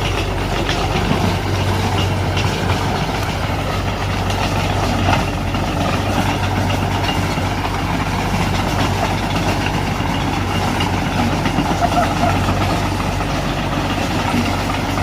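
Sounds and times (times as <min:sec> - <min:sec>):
diesel engine of earthmoving machine: 0:00.0 - 0:15.0.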